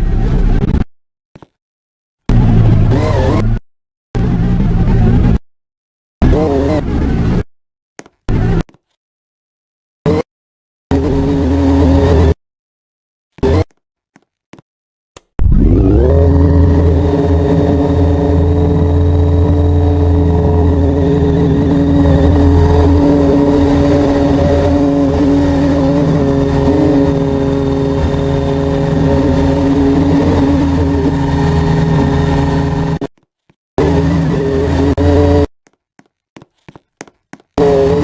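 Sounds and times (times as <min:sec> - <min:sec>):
loud mechanical hum: 0:15.4 - 0:33.1, 0:33.8 - 0:35.4.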